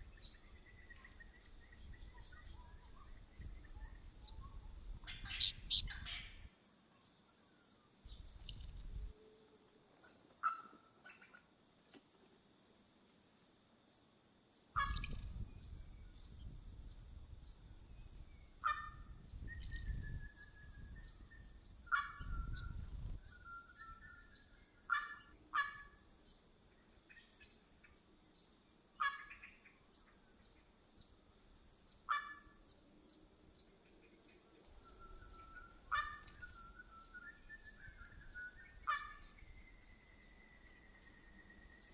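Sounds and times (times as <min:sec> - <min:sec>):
sharp bird calls and whistles: 0:00.0 - 0:13.0, 0:13.9 - 0:41.9
high-pitched bird call: 0:05.1 - 0:06.3.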